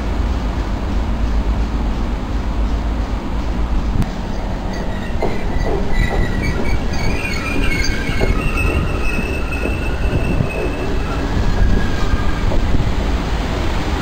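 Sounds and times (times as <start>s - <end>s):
train rumbling past: 0.0s - 14.0s
wheels knocking on rail joints: 4.0s - 13.0s
wheel squeal: 4.7s - 12.6s.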